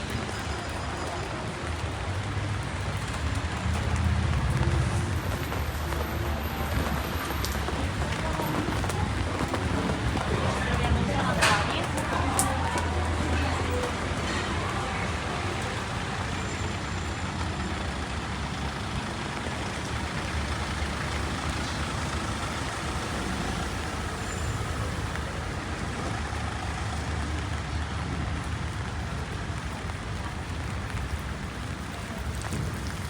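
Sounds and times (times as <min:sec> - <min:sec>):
road traffic rumble: 0:00.0 - 0:33.0
rain hiss: 0:12.0 - 0:33.0.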